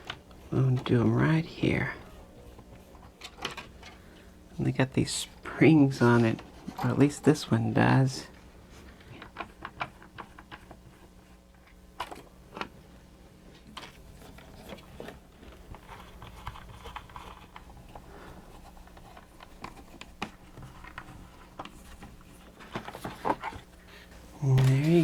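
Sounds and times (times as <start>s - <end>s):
steady low hum: 0.0s - 25.0s
faint rustling: 13.8s - 25.0s.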